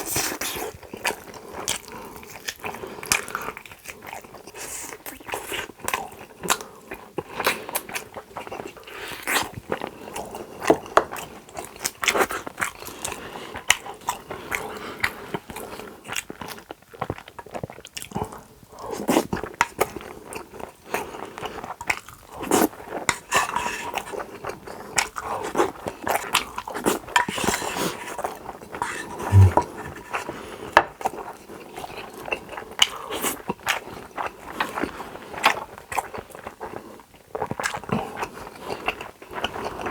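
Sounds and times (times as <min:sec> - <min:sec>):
person chewing food: 0:00.2 - 0:29.6.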